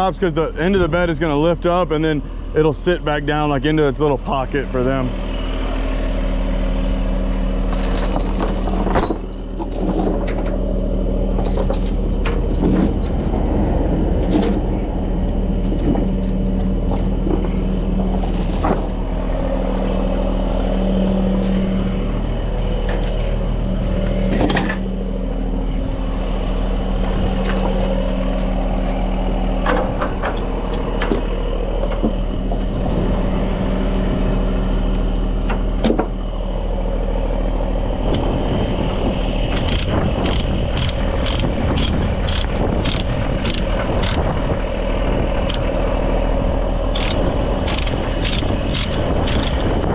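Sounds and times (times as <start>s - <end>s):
truck diesel engine running: 0.0s - 49.9s
sharp metal clanks: 24.3s - 24.9s.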